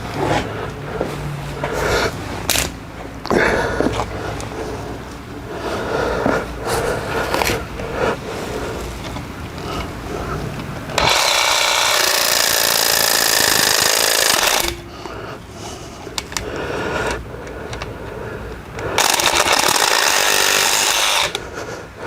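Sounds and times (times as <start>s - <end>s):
jigsaw cutting metal: 10.9s - 14.9s, 18.9s - 21.5s.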